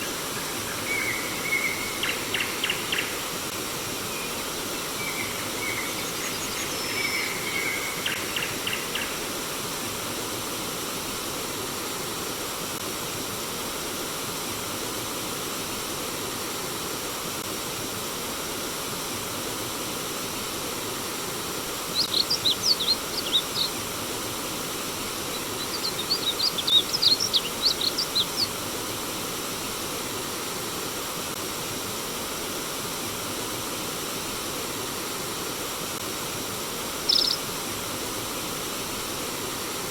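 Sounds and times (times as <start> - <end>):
stream water flowing: 19.3 - 39.9
birds chirping: 21.9 - 23.9, 25.0 - 28.6, 37.0 - 37.5.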